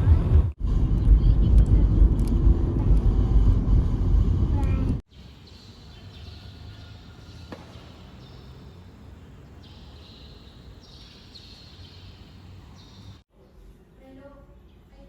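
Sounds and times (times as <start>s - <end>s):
low rumble: 0.0s - 5.0s
high chirring calls: 5.1s - 13.2s.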